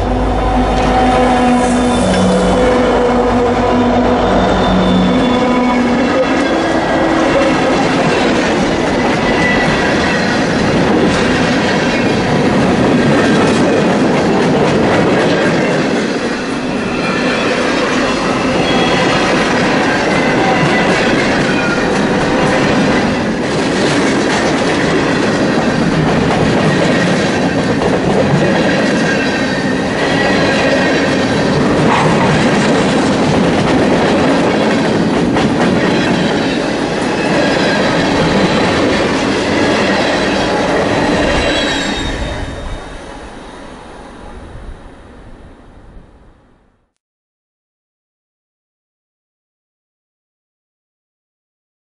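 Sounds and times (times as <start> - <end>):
freight train cars rumbling past: 0.0 - 46.5
high wheel squeals: 0.4 - 10.4, 16.4 - 19.3, 41.0 - 43.9.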